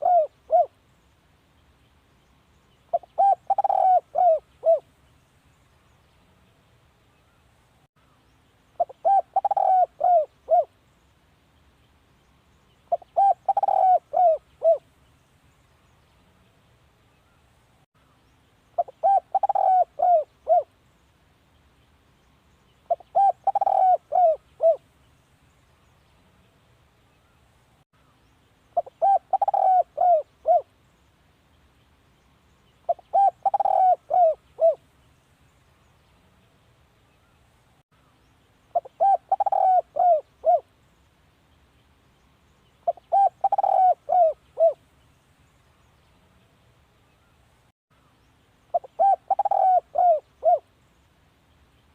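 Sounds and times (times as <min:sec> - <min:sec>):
dove cooing: 0:00.0 - 0:00.8, 0:02.9 - 0:04.9, 0:08.8 - 0:10.8, 0:12.9 - 0:14.8, 0:18.8 - 0:20.7, 0:22.9 - 0:24.8, 0:28.8 - 0:30.7, 0:32.9 - 0:34.8, 0:38.7 - 0:40.7, 0:42.8 - 0:44.8, 0:48.7 - 0:50.7.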